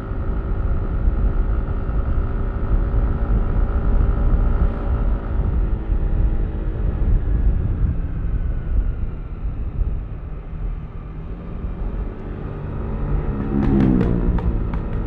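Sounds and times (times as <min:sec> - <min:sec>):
scooter engine rumbling: 0:11.2 - 0:15.0.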